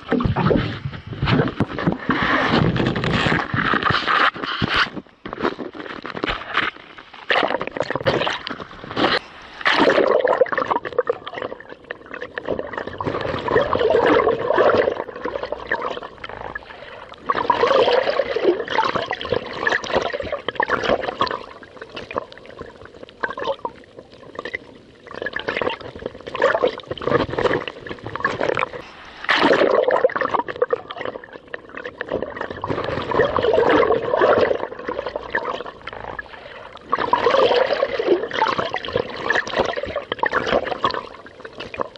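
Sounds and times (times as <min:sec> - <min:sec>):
water slapping kayak hull: 0:25.3 - 0:41.9.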